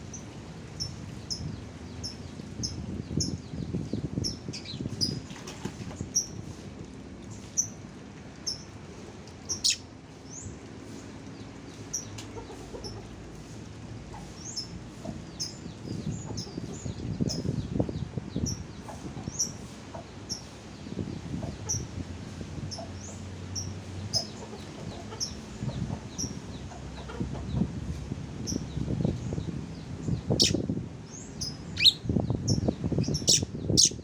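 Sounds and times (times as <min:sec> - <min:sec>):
rough bird calls: 0:09.5 - 0:09.8, 0:31.7 - 0:32.0
high sharp bird chirps: 0:09.6 - 0:09.8, 0:31.8 - 0:32.0.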